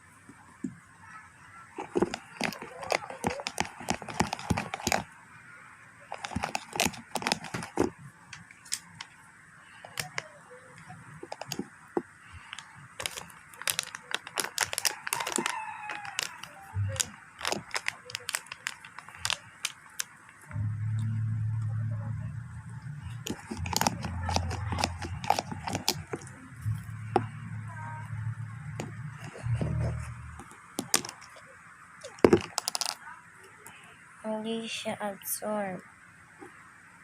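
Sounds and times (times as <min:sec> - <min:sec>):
slime stirred in bowl: 0:01.8 - 0:05.1, 0:06.1 - 0:08.0, 0:09.8 - 0:10.2, 0:11.2 - 0:20.2, 0:23.1 - 0:27.3, 0:28.8 - 0:31.4, 0:32.0 - 0:33.0.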